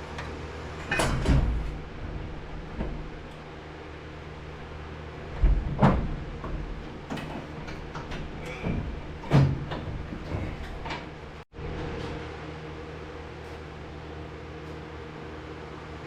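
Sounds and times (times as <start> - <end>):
low hum: 0.0 - 16.0
heavy metal clunks: 0.8 - 3.6, 5.1 - 11.4.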